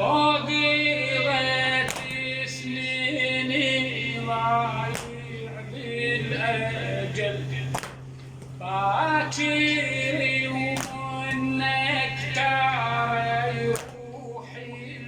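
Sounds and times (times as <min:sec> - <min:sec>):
man chanting melismatic notes: 0:00.0 - 0:15.0
steady low hum: 0:00.0 - 0:15.0
sharp knocks: 0:04.9 - 0:05.2.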